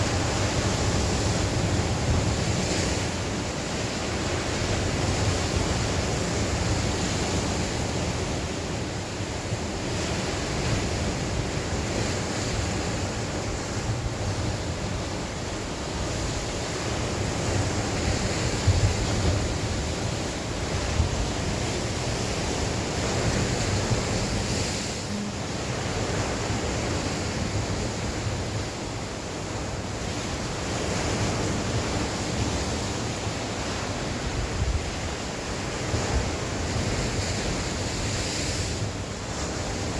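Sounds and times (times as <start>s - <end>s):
waves breaking on shore: 0.0s - 39.9s
wind gusting across microphone: 0.0s - 39.9s.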